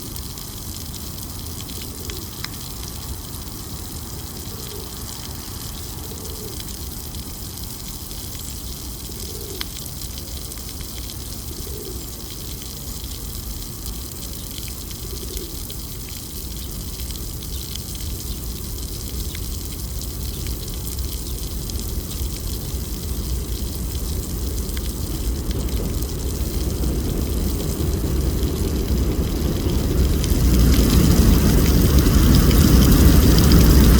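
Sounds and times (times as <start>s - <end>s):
low traffic rumble: 18.1s - 33.9s.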